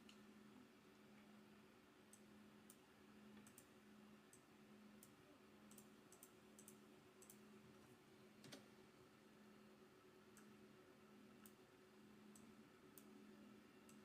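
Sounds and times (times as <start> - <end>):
low steady hum: 0.0 - 14.0
computer clicks: 3.4 - 3.7, 4.3 - 7.5, 8.4 - 8.7, 11.4 - 11.6, 12.3 - 13.2.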